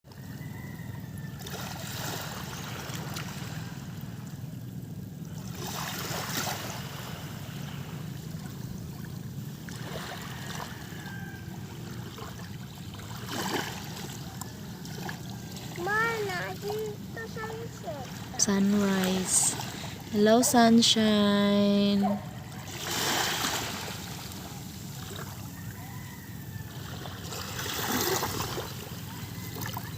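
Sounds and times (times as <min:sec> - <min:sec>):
sea waves washing in: 0:01.4 - 0:29.9.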